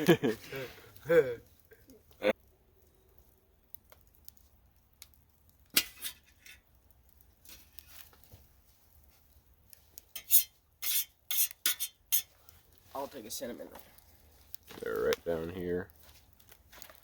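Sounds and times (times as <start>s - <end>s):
utensils clinking on camp dishes: 5.7s - 6.7s, 10.0s - 12.5s.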